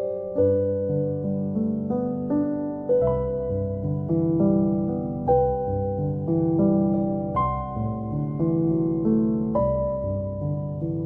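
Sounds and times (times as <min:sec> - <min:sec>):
slow piano music: 0:00.0 - 0:11.0.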